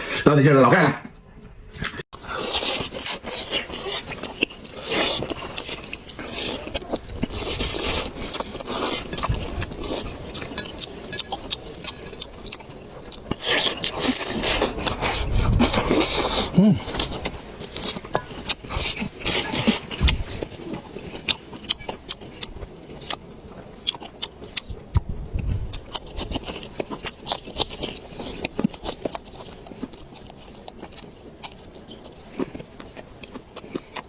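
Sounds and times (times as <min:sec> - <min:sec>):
person chewing and biting food: 0:02.2 - 0:34.0.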